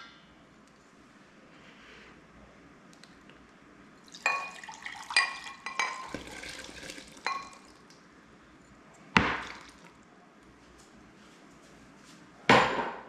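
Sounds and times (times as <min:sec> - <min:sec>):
kitchenware clinking and clattering: 0:04.2 - 0:07.7.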